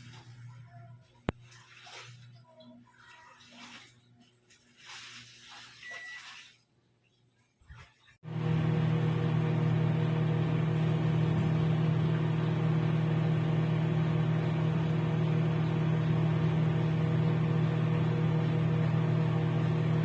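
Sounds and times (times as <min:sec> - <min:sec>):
microwave oven humming: 0:00.0 - 0:02.3, 0:08.2 - 0:20.0.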